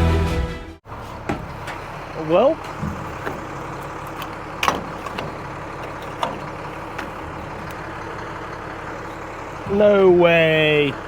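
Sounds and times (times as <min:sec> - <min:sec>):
vehicle engine running: 0:00.8 - 0:11.0.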